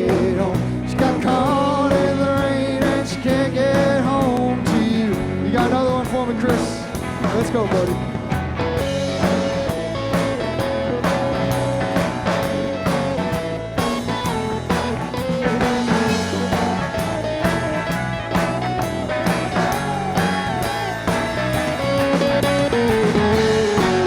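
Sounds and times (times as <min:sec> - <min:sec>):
bass guitar: 0:00.0 - 0:24.0
drum kit beat: 0:00.0 - 0:24.0
lead guitar solo: 0:08.2 - 0:24.0.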